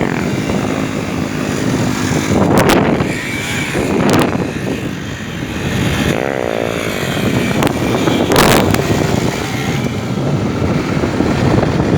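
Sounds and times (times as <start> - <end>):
motorcycle engines running: 0.0 - 11.9.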